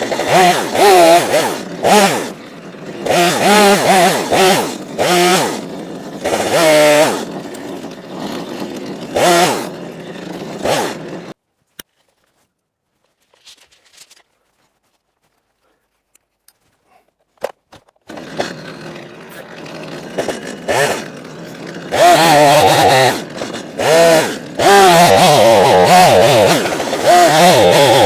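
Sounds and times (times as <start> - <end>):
small petrol engine revving: 0.0 - 11.4, 18.1 - 28.0.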